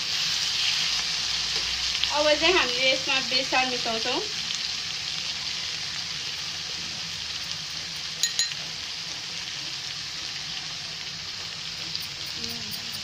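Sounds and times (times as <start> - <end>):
vegetables sizzling in hot oil: 0.0 - 13.0
light metal clinks: 8.2 - 8.7.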